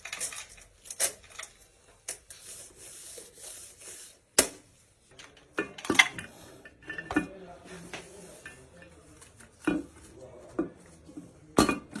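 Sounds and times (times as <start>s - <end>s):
metal tools clicking and clinking: 0.0s - 2.2s.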